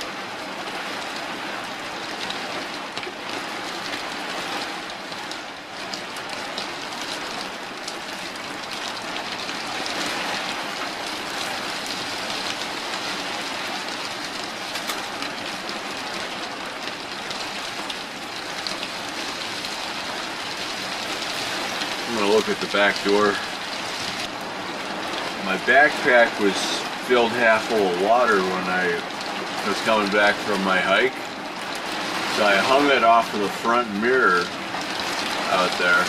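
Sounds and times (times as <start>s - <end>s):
heavy rain on a roof: 0.0s - 36.0s.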